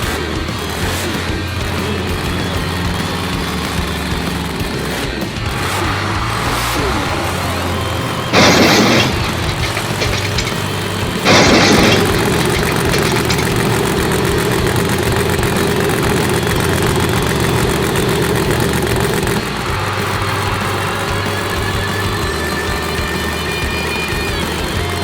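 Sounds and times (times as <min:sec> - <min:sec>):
monster truck engine running: 0:00.0 - 0:25.0
loud rushing burst: 0:06.6 - 0:21.1.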